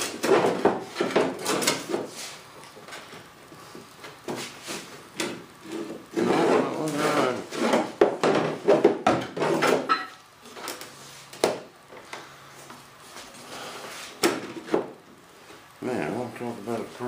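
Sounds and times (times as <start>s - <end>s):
wood rubbing and scraping: 5.6s - 9.8s.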